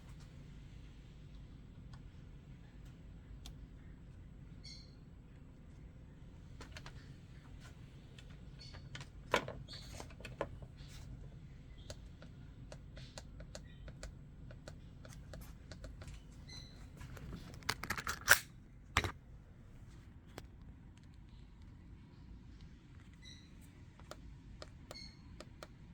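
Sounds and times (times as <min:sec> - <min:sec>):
low steady hum: 0:00.0 - 0:25.9
clacking parts: 0:17.2 - 0:19.1.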